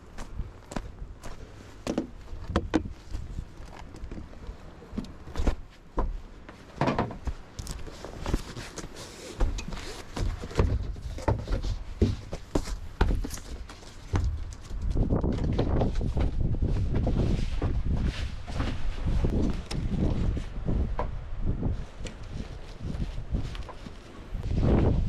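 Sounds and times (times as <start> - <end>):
wind rumbling on microphone: 2.2 - 5.6, 12.8 - 25.0
irregular knocks and thuds: 9.4 - 18.8.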